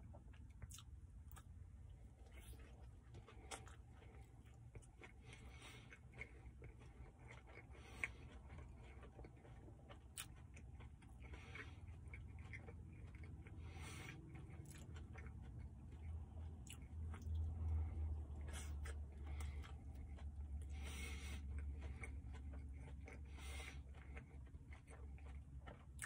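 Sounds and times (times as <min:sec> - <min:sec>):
low hum: 0:00.0 - 0:26.0
person chewing with closed lips: 0:00.0 - 0:26.0.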